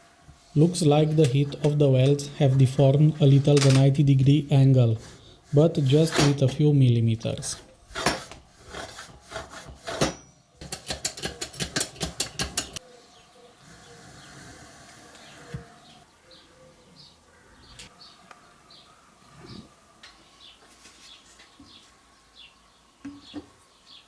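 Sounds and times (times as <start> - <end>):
rapid tapping on steel: 10.6 - 12.8
small birds chirping: 12.3 - 24.0.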